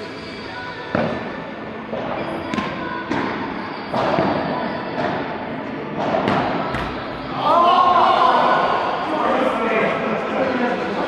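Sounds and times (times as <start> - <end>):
padel ball pops off rackets: 6.2 - 7.3.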